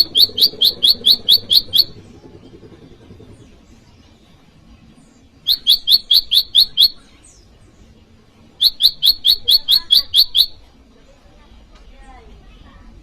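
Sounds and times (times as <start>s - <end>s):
bird calling rapid sharp notes: 0.0s - 3.9s, 5.4s - 7.1s, 8.5s - 10.7s.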